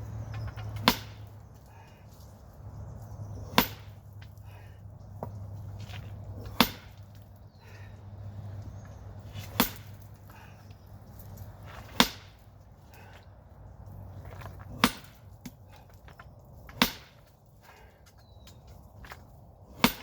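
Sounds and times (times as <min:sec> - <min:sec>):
sledgehammer striking rock: 0:00.7 - 0:01.4, 0:03.4 - 0:04.4, 0:05.2 - 0:07.3, 0:09.4 - 0:10.4, 0:11.6 - 0:12.5, 0:14.6 - 0:15.9, 0:16.7 - 0:17.3, 0:19.7 - 0:20.0.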